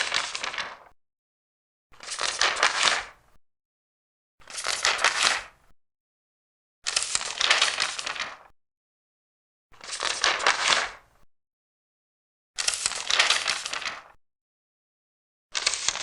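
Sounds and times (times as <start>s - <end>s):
large paper pages turning: 0.0s - 1.0s, 2.0s - 3.2s, 4.4s - 5.6s, 6.9s - 8.5s, 9.8s - 11.0s, 12.6s - 14.2s, 15.6s - 16.0s.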